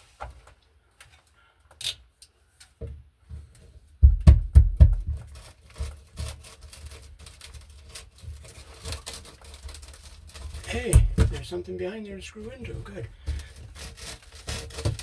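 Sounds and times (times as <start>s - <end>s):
thuds: 4.0s - 5.3s, 10.7s - 11.5s.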